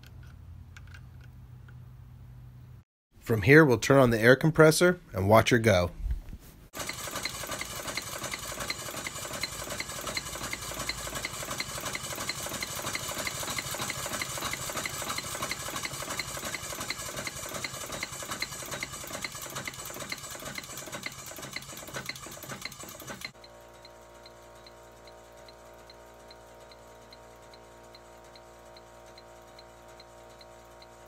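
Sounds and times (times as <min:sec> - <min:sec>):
model steam locomotive exhaust beats: 0:06.8 - 0:31.0.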